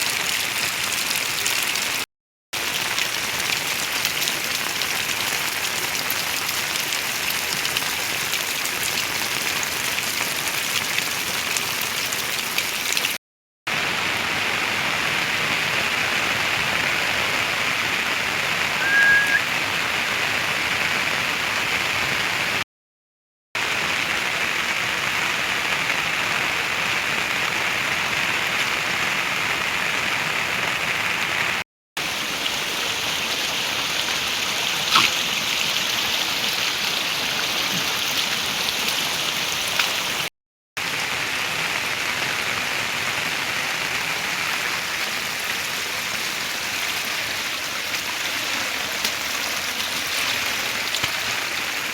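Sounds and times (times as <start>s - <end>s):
heavy rain hissing: 13.8s - 22.6s, 32.0s - 40.3s
high chirp: 18.8s - 19.8s.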